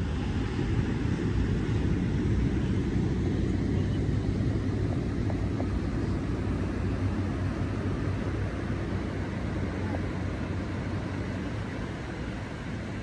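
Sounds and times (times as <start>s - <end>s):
ocean surf: 0.0s - 13.0s
wind buffeting microphone: 0.0s - 13.0s.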